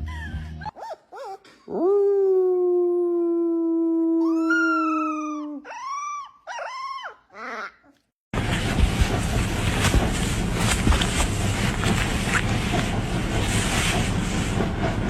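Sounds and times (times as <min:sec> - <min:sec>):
dog howling: 0:00.7 - 0:08.0.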